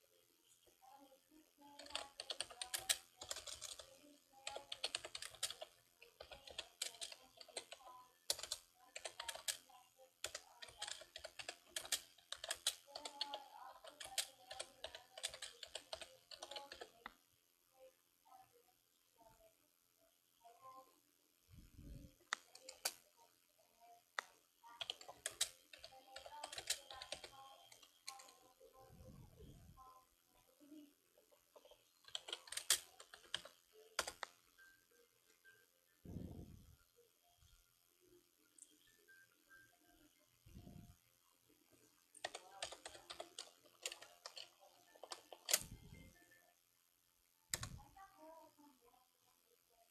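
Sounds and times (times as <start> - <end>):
sharp clicks and taps: 47.5 - 47.8.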